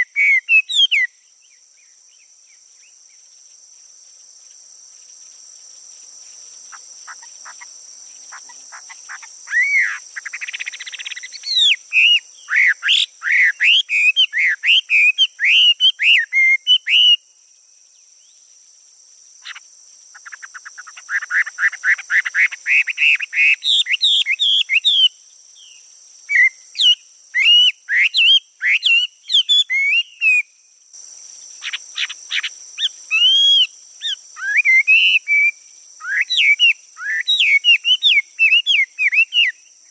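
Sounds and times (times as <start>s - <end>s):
songbird singing whistled trills: 0.0s - 2.9s, 9.2s - 17.2s, 20.8s - 30.5s, 31.6s - 39.9s
crickets droning: 0.0s - 39.9s.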